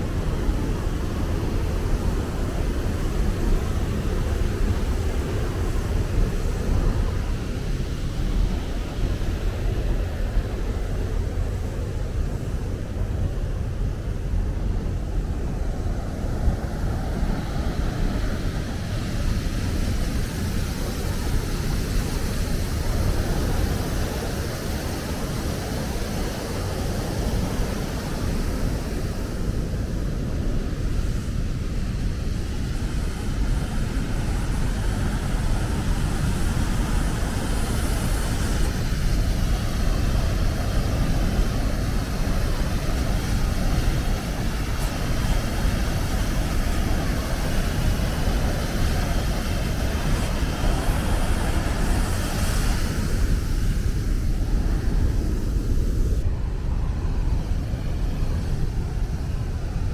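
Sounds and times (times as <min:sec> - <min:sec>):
waterfall roaring: 0:32.7 - 0:56.3.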